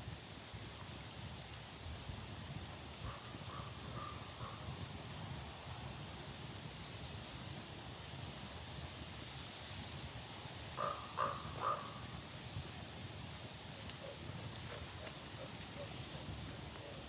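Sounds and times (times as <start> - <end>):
outdoor background noise: 0.0 - 17.0
crow-like bird cawing: 10.8 - 11.9.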